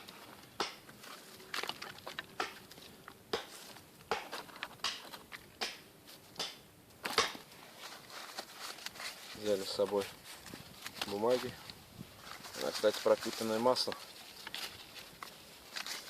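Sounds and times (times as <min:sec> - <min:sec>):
footsteps in snow: 0:07.5 - 0:16.0.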